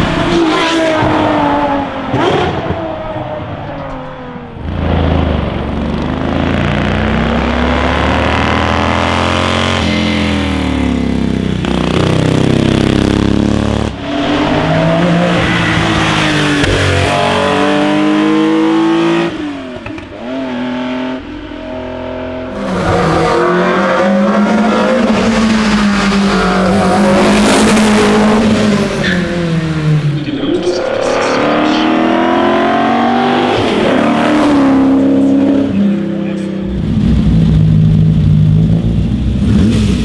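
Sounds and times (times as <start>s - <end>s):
racing car engines revving: 0.0s - 40.0s.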